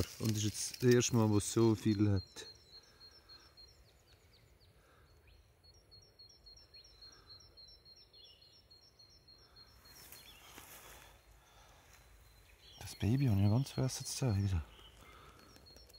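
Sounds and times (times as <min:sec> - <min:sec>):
faint chirps: 0:00.0 - 0:15.9
soft rustle: 0:09.8 - 0:12.6.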